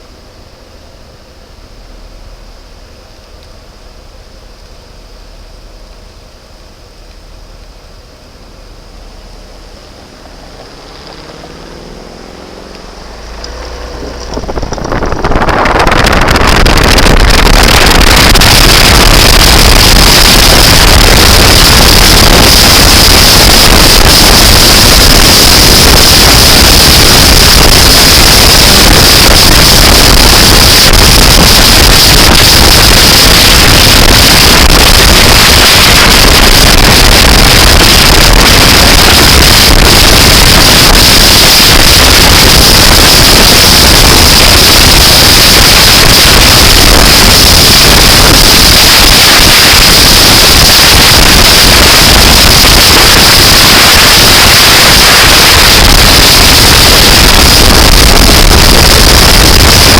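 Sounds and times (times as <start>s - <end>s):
moving vehicle running noise: 0.0s - 59.9s
wind blasting microphone: 12.8s - 59.9s.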